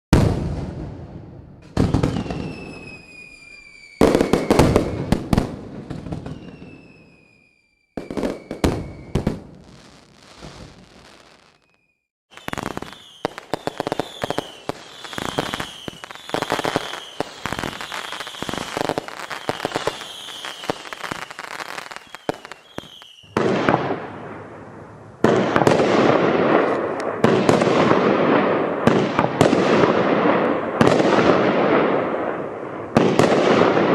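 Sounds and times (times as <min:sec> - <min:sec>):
firework shots firing: 0:00.1 - 0:03.0, 0:04.0 - 0:06.7, 0:08.0 - 0:11.7, 0:12.3 - 0:24.4, 0:25.2 - 0:33.9
firework bangs: 0:00.1 - 0:33.9
falling firework whistles: 0:01.6 - 0:24.0
firework crackling: 0:01.8 - 0:33.9.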